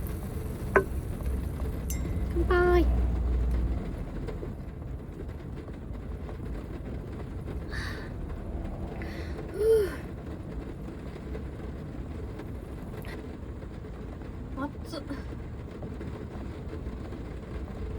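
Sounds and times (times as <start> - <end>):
steady low rumble: 0.0 - 17.9.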